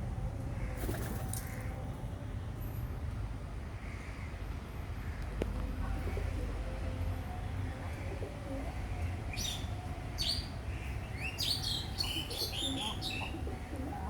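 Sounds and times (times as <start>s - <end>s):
pet birds chirping: 11.2s - 14.0s.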